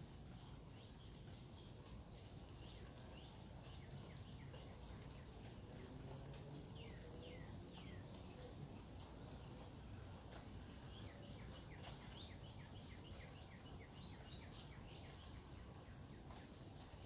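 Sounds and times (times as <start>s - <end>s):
faint background noise: 0.0s - 17.0s.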